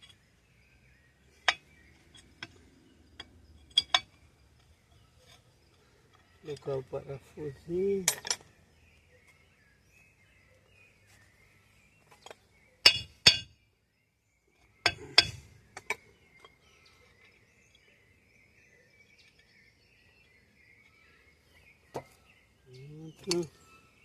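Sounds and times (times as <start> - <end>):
metal clinks of bolt and tools: 1.4 - 6.7, 8.0 - 8.5, 14.8 - 17.9.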